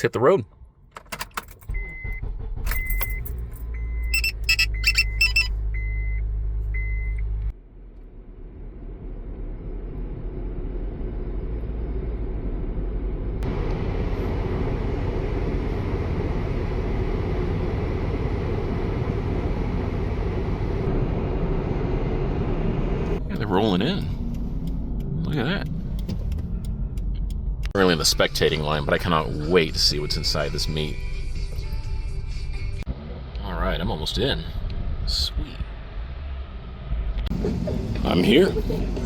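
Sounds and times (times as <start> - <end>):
road noise inside moving car: 0.0 - 39.0
car engine idling: 1.7 - 39.0
warning chime beeping: 4.0 - 6.2.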